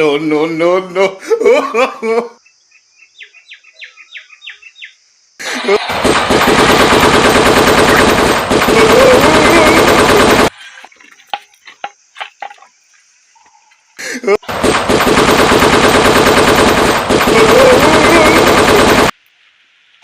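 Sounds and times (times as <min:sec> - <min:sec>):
machine-gun automatic fire: 0:05.8 - 0:10.5, 0:14.5 - 0:19.1.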